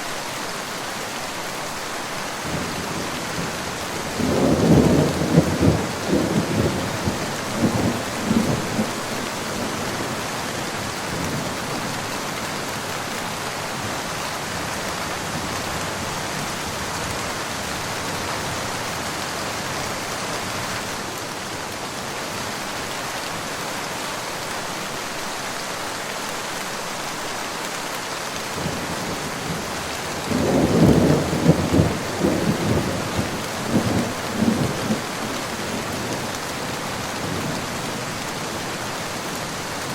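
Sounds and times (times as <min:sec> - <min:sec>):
steady rain falling: 0:00.0 - 0:39.9
thunder rumbling: 0:02.4 - 0:10.2, 0:28.6 - 0:38.7.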